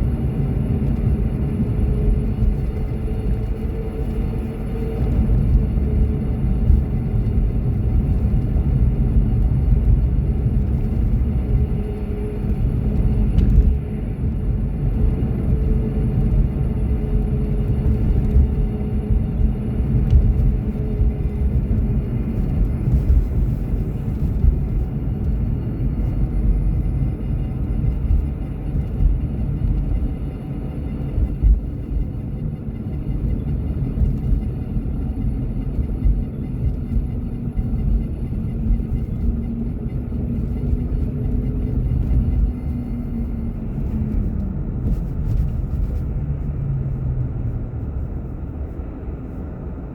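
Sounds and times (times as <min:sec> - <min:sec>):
car road and engine rumble: 0:00.0 - 0:49.9.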